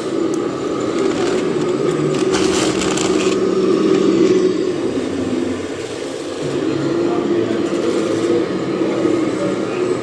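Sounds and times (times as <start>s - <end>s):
model truck mechanical hum: 0.0s - 10.0s
crunching scrape: 0.8s - 3.5s.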